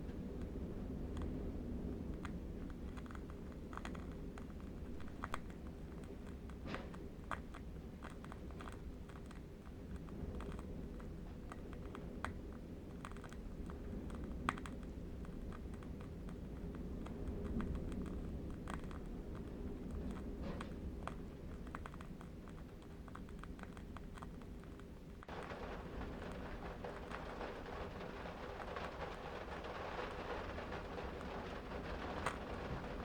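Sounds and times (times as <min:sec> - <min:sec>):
distant wind rumble: 0:00.0 - 0:33.0
candle wick crackling: 0:24.0 - 0:33.0.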